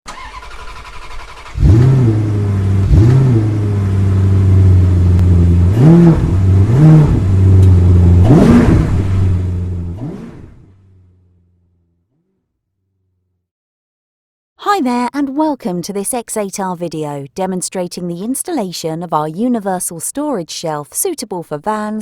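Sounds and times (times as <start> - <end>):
engine throttle blips: 0.1 - 11.9
car engine idling: 0.1 - 12.0.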